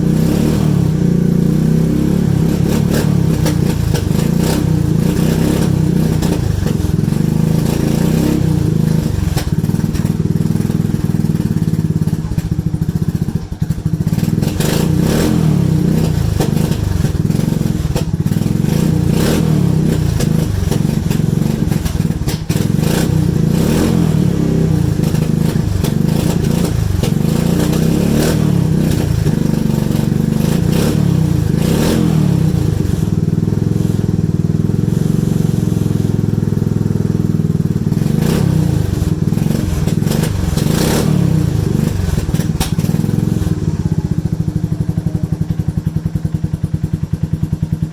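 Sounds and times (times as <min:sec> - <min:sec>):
atv engine running: 0:00.0 - 0:47.9
light rhythmic engine clatter: 0:00.0 - 0:47.9.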